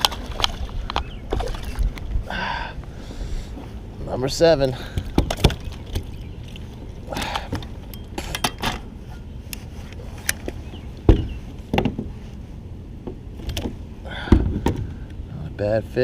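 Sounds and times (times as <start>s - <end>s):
knocks and clicks in a kayak: 0.0s - 2.1s, 4.9s - 8.8s, 10.2s - 12.2s.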